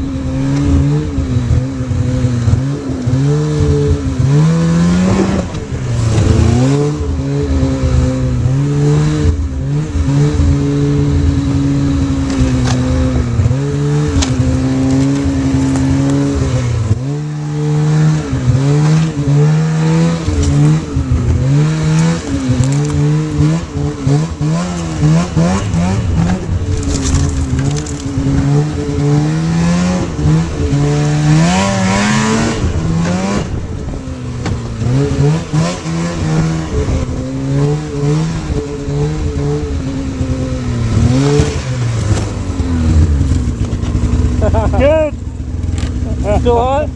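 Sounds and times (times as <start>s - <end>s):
snowmobile engine revving: 0.0s - 46.9s.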